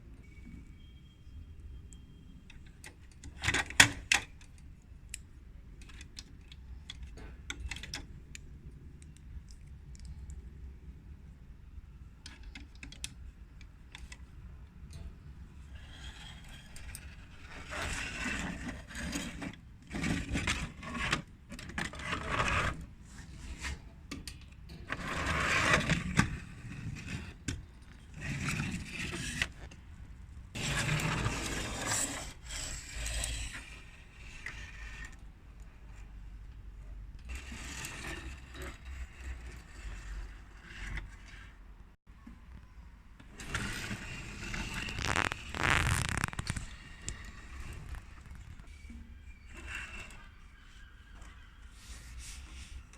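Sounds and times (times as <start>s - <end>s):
scraping and clicking: 15.7s - 29.8s, 43.2s - 52.8s
toy vehicles being handled: 43.2s - 48.8s.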